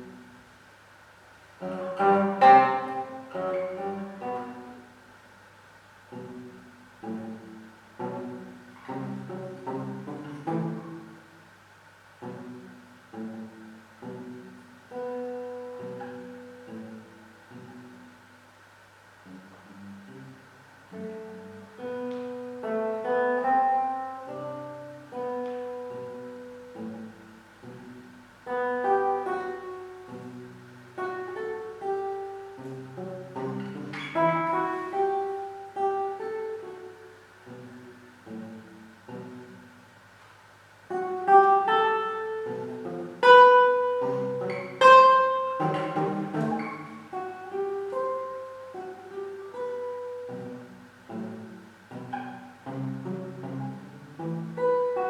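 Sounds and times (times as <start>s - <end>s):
classical guitar plucking: 0.0s - 55.0s.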